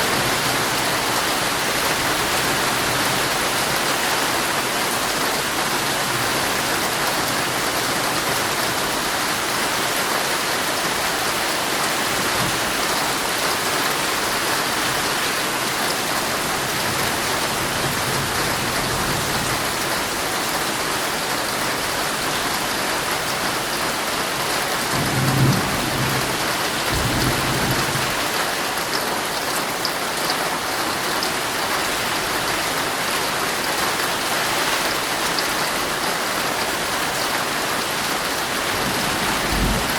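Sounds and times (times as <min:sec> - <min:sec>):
heavy rain on tent fabric: 0:00.0 - 0:39.9
rolling thunder: 0:38.7 - 0:39.9.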